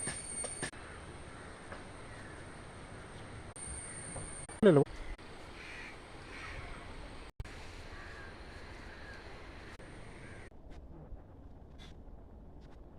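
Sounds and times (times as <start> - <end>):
crow cawing: 0.8 - 3.2, 5.0 - 6.7, 7.9 - 9.3, 10.2 - 10.5.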